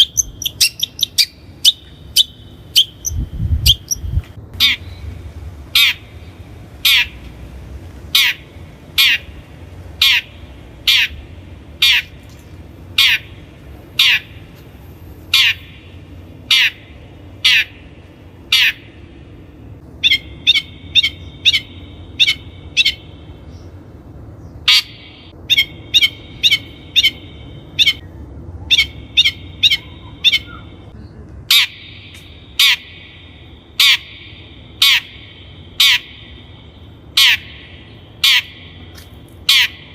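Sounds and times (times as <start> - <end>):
bird giving harsh squawking calls: 0.0 - 5.1, 5.7 - 6.2, 6.8 - 7.2, 8.1 - 9.4, 10.0 - 11.2, 11.8 - 12.2, 13.0 - 13.4, 14.0 - 14.5, 15.3 - 15.9, 16.5 - 17.9, 18.5 - 19.0, 20.0 - 23.2, 24.7 - 28.1, 28.7 - 30.8, 31.5 - 36.4, 37.1 - 38.8, 39.4 - 39.9.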